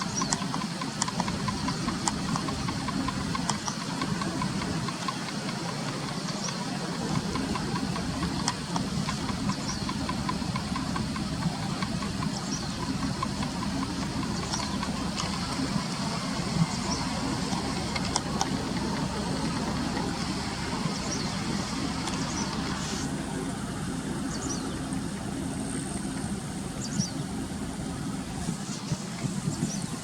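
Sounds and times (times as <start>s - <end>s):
faint ticks and clicks: 0.0s - 22.9s.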